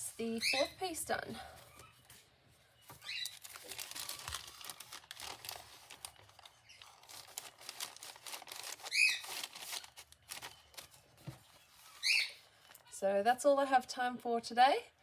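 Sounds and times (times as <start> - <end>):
paper rustling and crinkling: 1.5 - 12.8.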